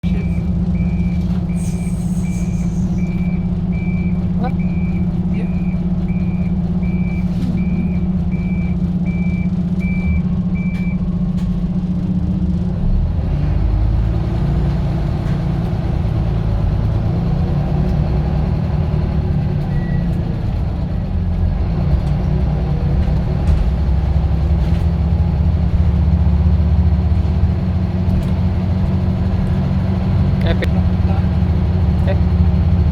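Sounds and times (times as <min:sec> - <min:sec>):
bus diesel engine running: 0:00.0 - 0:32.9
reversing beeper: 0:00.1 - 0:11.0.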